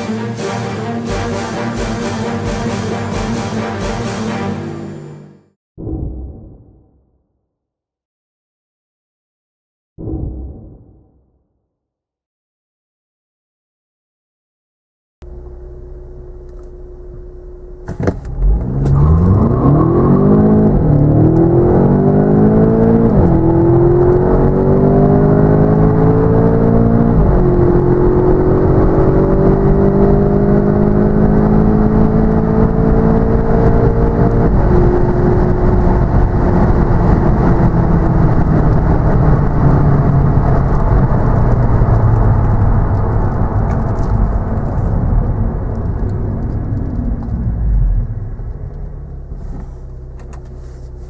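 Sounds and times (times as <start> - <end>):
car engine idling: 15.2 - 17.8
car engine accelerating: 15.2 - 51.0.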